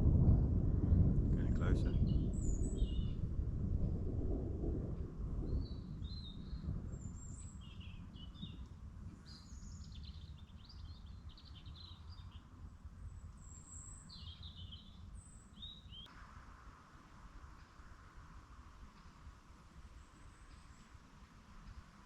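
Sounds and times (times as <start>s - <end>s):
low rumble: 0.0s - 20.5s
songbirds chirping: 1.4s - 3.3s, 5.4s - 16.1s, 18.7s - 22.0s.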